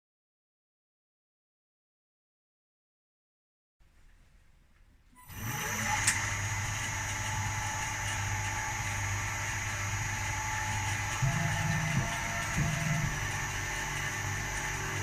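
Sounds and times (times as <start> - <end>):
milling machine spindle motor whine: 5.2 - 15.0.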